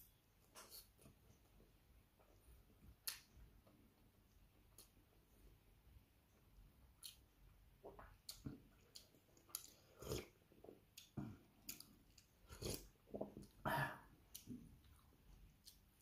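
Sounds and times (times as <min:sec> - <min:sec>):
person chewing wetly: 0:06.9 - 0:13.6.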